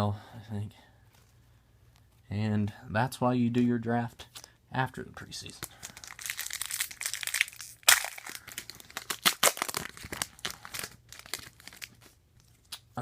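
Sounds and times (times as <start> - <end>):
cards rustling: 5.4 - 12.9
foil wrapper tearing and crinkling: 5.6 - 12.8.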